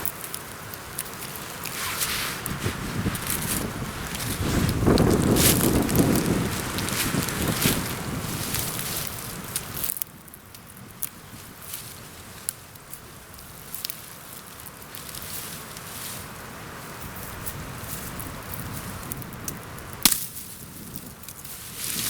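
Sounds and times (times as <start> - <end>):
branch snapping: 0.0 - 10.1, 19.4 - 22.0
twigs cracking: 0.0 - 16.3, 17.0 - 22.0
wind in forest: 0.0 - 22.0.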